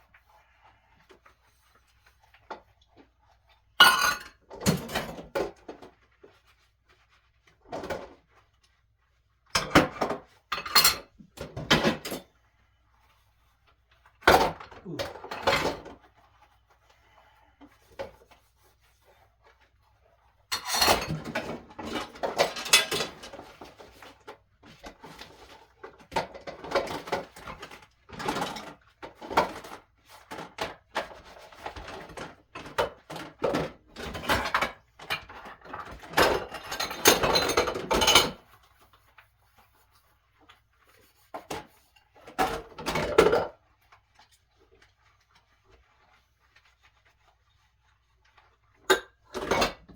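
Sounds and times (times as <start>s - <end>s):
dishes and pots clattering: 3.8s - 6.0s, 9.5s - 12.3s, 14.2s - 16.0s, 20.5s - 38.6s, 41.4s - 43.6s, 48.8s - 49.9s.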